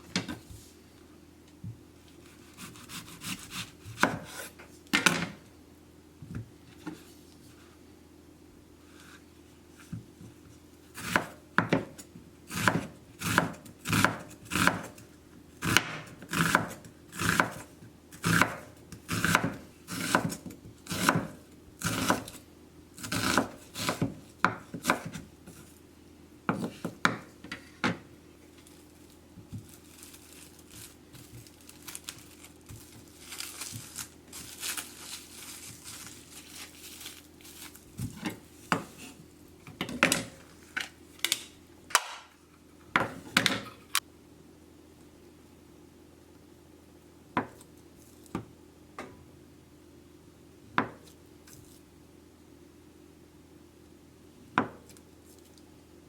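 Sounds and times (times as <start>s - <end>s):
knife chopping on wooden board: 2.6s - 4.4s, 11.0s - 15.0s, 15.6s - 22.4s, 23.0s - 25.2s, 26.5s - 28.0s
rustling and scraping: 28.5s - 39.3s.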